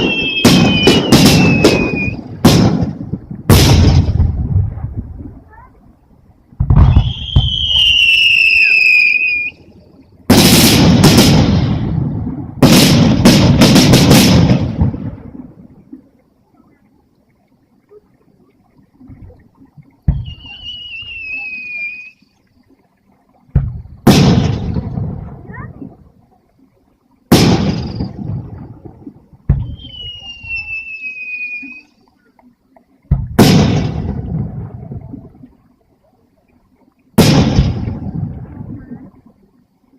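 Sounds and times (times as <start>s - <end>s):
firework shell whistling: 0.0s - 2.7s, 6.7s - 9.7s, 20.1s - 22.3s, 29.5s - 32.0s
sharp firework crackles: 0.0s - 4.9s, 6.6s - 9.5s, 10.3s - 15.4s, 23.6s - 25.3s, 27.3s - 28.7s, 33.2s - 34.7s, 37.2s - 38.4s
firework shell bursts booming: 23.6s - 25.2s, 33.1s - 34.2s, 37.2s - 38.1s.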